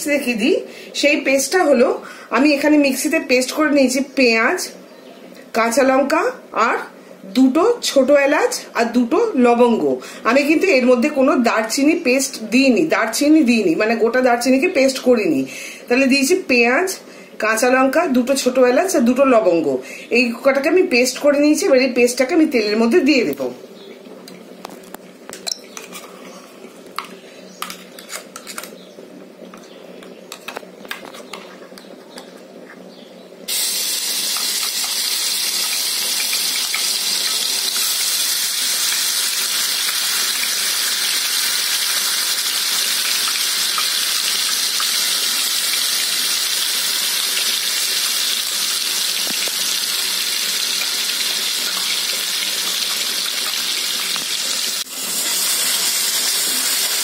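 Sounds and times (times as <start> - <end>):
paste sizzling in hot oil: 33.5 - 57.0.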